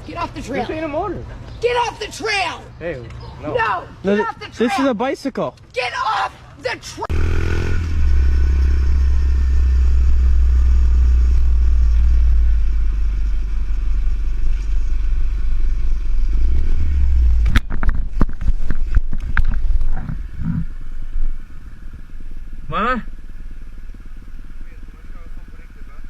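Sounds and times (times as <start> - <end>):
motorcycle engine rumble: 7.1 - 26.0.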